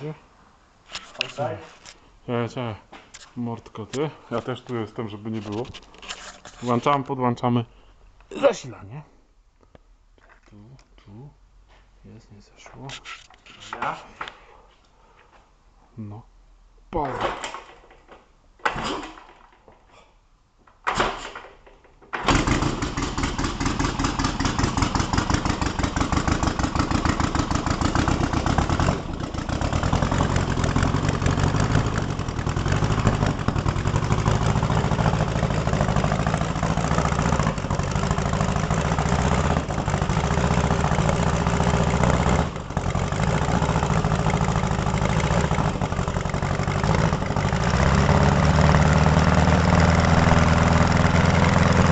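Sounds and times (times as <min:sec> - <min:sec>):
car engine starting and idling: 0:22.2 - 0:51.9.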